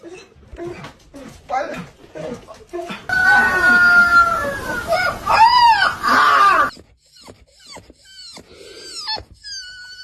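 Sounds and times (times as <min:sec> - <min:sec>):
dog howling: 0:03.1 - 0:06.7
dog whining: 0:05.9 - 0:10.0.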